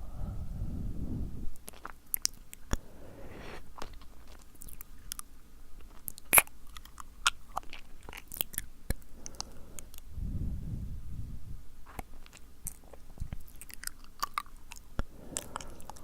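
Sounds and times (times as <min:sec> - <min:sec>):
low puff of breath: 0:02.7 - 0:03.8, 0:15.1 - 0:16.0.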